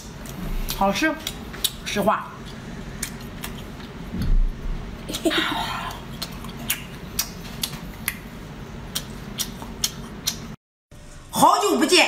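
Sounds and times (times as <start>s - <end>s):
person chewing chocolate: 5.9s - 8.3s, 8.9s - 10.6s
sticky mouth clicks: 8.9s - 10.6s.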